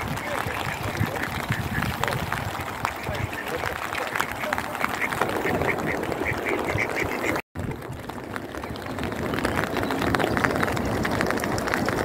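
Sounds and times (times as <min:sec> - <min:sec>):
ducks quacking: 0:00.0 - 0:07.4
heavy rain falling: 0:00.0 - 0:12.0.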